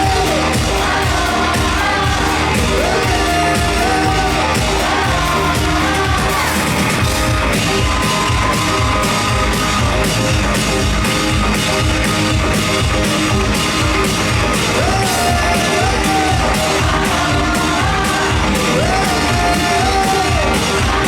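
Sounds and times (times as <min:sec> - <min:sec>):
person singing: 0:00.0 - 0:08.8, 0:14.6 - 0:21.0
drum kit beat: 0:00.0 - 0:21.0.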